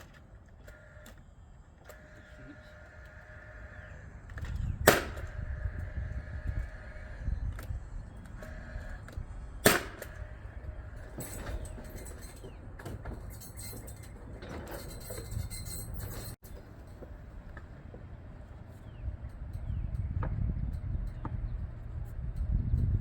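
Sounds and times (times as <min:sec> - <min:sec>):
nail driven into wood: 0:04.8 - 0:05.4, 0:09.6 - 0:10.2
light clattering and handling: 0:09.9 - 0:18.9.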